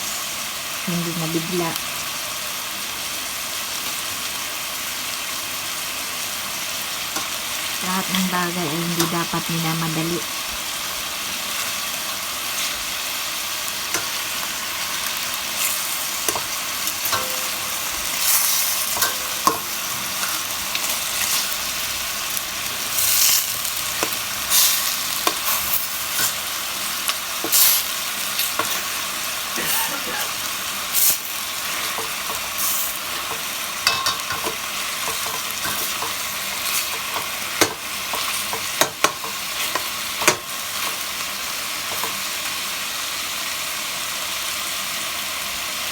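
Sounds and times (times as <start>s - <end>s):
chicken frying in oil: 0.0s - 45.9s
oil popping and crackling: 13.6s - 41.0s.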